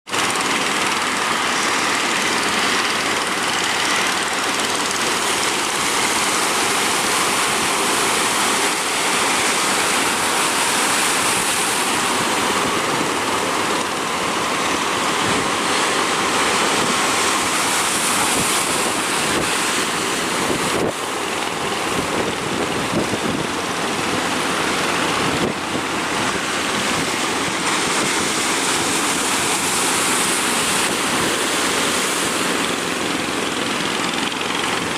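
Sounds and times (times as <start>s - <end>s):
ocean surf breaking: 0.1s - 34.9s
wind buffeting microphone: 16.6s - 30.1s.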